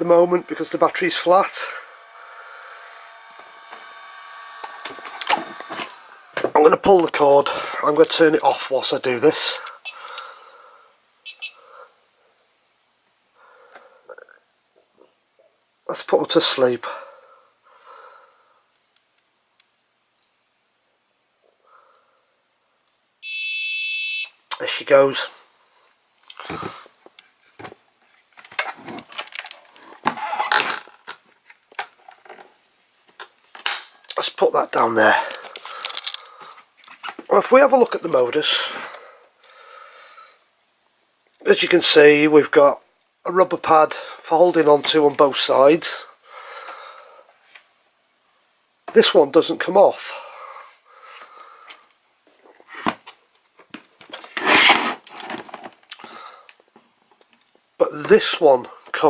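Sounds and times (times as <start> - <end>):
rubbing scrape: 54.3 - 55.5.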